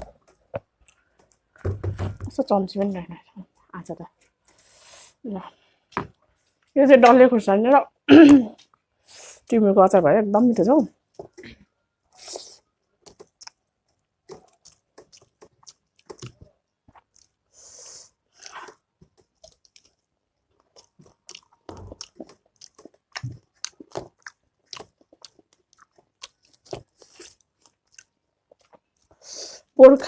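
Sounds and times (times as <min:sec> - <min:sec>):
wet mouth clicks: 0:12.2 - 0:13.6
chewing and crunching: 0:13.0 - 0:17.4, 0:18.3 - 0:29.2.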